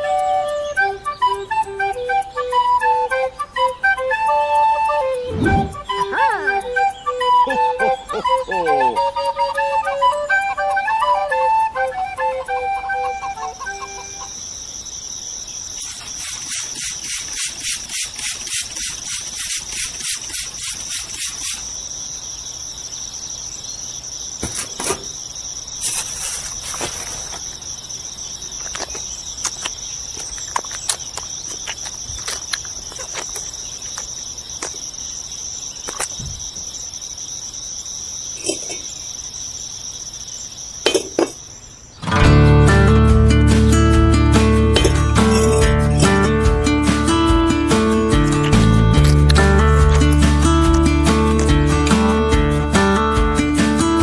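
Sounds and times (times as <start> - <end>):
insect trill: 0.0 - 54.0
trowel scraping wet cement: 15.8 - 21.6.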